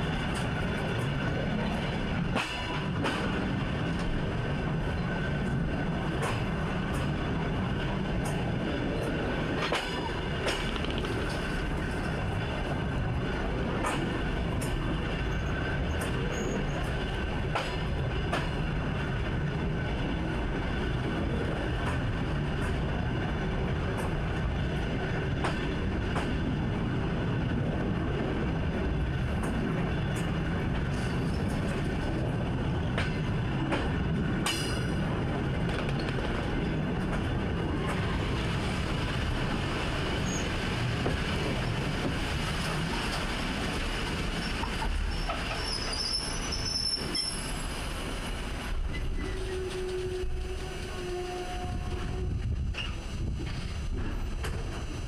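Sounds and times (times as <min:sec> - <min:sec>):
train rumbling on track: 0:00.0 - 0:55.0
sharp track clicks: 0:09.1 - 0:12.2, 0:25.4 - 0:26.4
high squeal from wheels: 0:16.3 - 0:16.9, 0:40.2 - 0:40.5, 0:44.4 - 0:47.8, 0:48.9 - 0:51.8.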